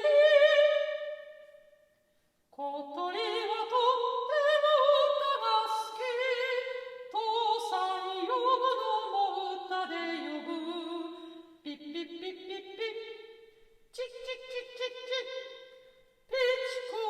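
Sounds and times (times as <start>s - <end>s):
high voice singing a cappella: 0.0s - 1.3s, 2.6s - 13.2s, 13.9s - 15.6s, 16.3s - 17.0s.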